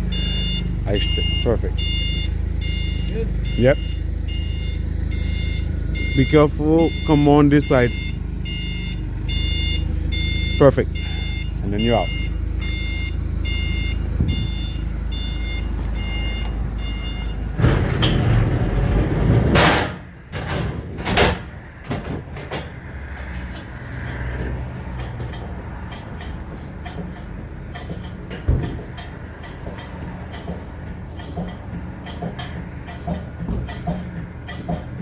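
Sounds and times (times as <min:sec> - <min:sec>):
reversing alarm beeping: 0:00.0 - 0:18.8
engine running: 0:00.0 - 0:35.0
knocks and clanks of freight: 0:00.0 - 0:35.0.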